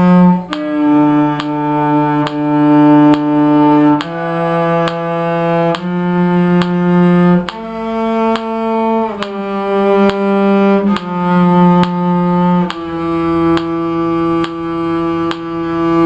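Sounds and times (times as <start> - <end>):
low bowed string melody: 0.0 - 16.0
faint steady clicks: 10.8 - 13.8, 14.4 - 15.6.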